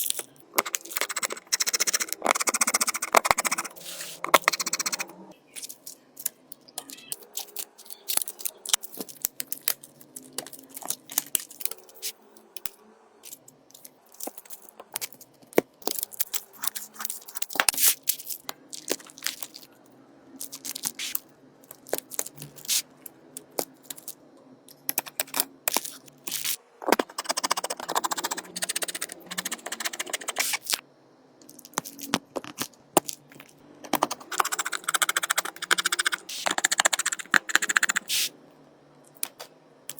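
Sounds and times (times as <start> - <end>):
scraping and tearing noise: 0.0 - 5.1
small tools clicking and tapping: 5.6 - 19.6.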